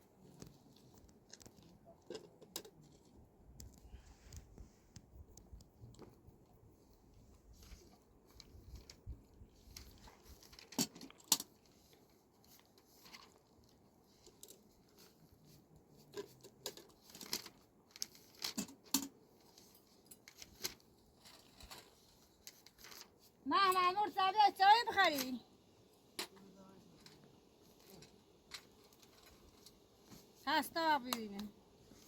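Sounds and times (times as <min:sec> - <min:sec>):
small objects clicking and rustling: 0:00.2 - 0:06.2, 0:07.6 - 0:15.3, 0:16.0 - 0:23.2, 0:26.1 - 0:30.3.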